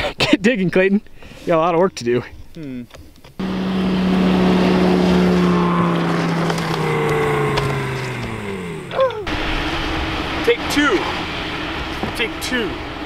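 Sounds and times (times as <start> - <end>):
car engine running: 3.4 - 13.0.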